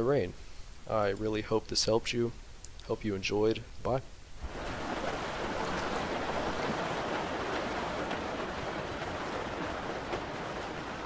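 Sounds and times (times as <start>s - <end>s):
steady rain: 3.6s - 11.0s.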